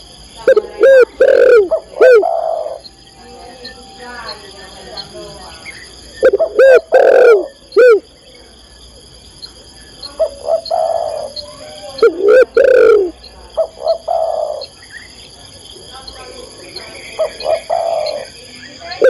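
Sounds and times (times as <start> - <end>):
dove cooing: 0.4 - 8.1, 10.0 - 14.8, 16.2 - 19.0.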